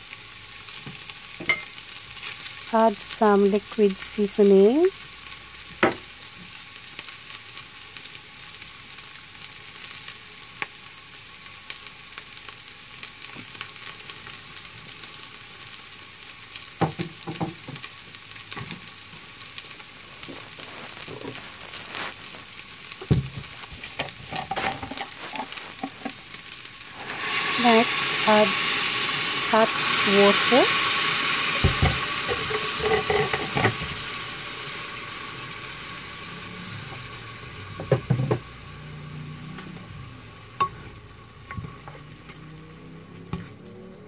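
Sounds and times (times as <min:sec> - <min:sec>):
vegetables and meat sizzling in oil: 0:00.0 - 0:44.0.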